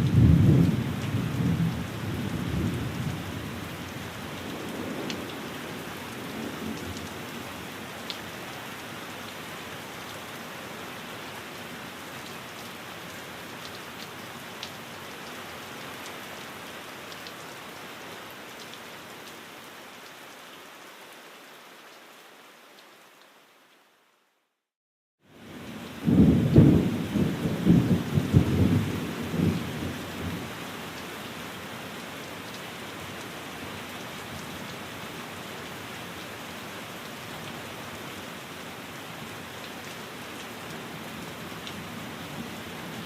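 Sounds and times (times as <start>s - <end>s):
steady rain: 0.0s - 43.0s
thunder rumbling: 26.0s - 30.4s.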